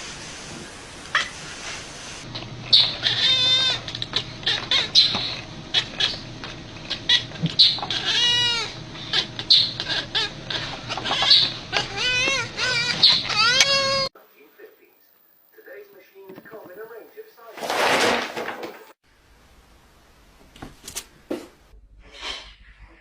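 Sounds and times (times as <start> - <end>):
animal bleating cries: 2.7 - 6.2, 7.0 - 14.1.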